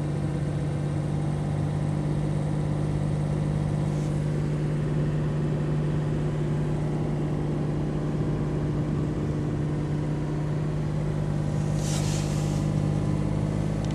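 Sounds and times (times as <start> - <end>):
car engine running: 0.0 - 13.9
brief hiss: 11.6 - 12.8
engine ticking: 12.6 - 13.9.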